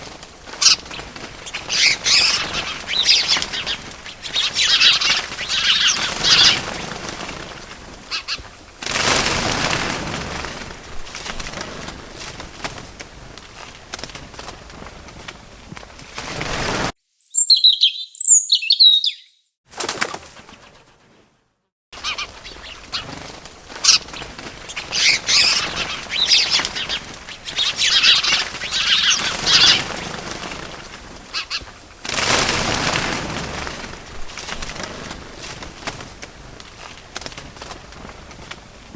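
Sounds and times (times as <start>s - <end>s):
birds chirping: 0.0s - 8.7s, 17.0s - 19.6s, 22.0s - 31.9s
small birds flapping wings: 0.0s - 17.0s, 19.7s - 21.3s, 22.0s - 38.9s.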